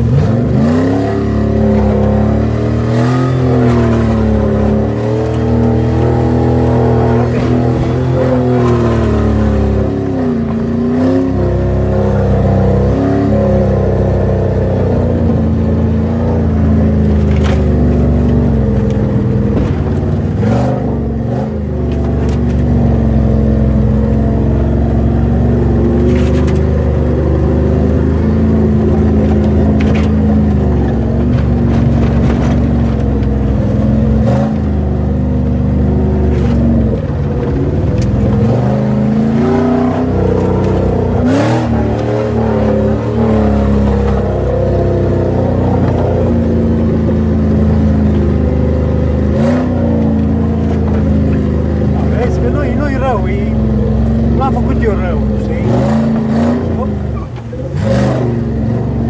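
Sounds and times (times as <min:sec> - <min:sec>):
car engine revving: 0:00.0 - 0:59.0
vehicle knocks and clatter: 0:17.0 - 0:20.9, 0:29.1 - 0:33.9.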